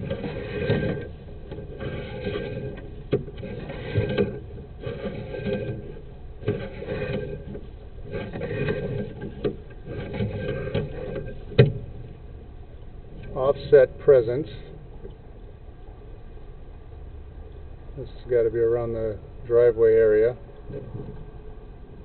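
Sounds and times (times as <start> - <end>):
cable clattering and scraping: 0.0 - 15.5, 18.0 - 22.0.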